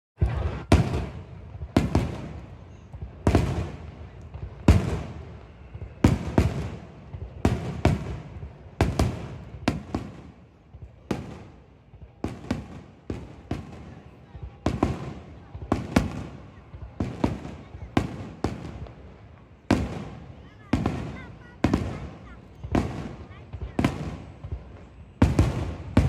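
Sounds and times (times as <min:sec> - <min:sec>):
firework shells booming: 0:00.2 - 0:10.4.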